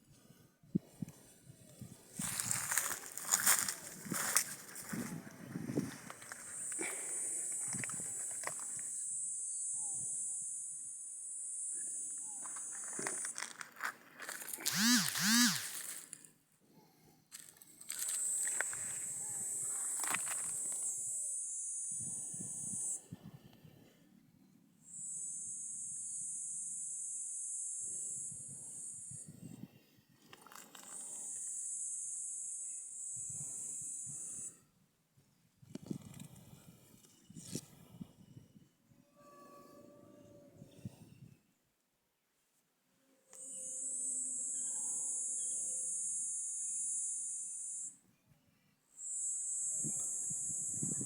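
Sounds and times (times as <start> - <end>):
high insect buzz: 2.2 - 13.6, 14.2 - 16.1, 17.9 - 23.0, 24.9 - 29.3, 30.8 - 34.5, 43.3 - 48.0, 49.0 - 51.0.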